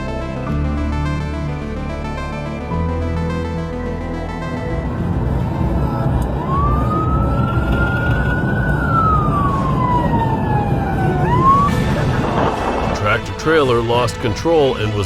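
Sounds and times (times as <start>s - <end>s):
road and engine rumble: 0.0s - 15.0s
police siren wailing: 4.6s - 13.2s.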